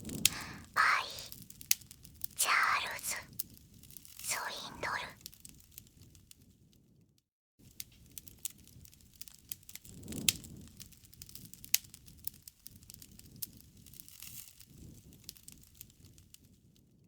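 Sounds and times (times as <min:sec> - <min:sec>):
wood fire crackling and popping: 0:07.6 - 0:16.5.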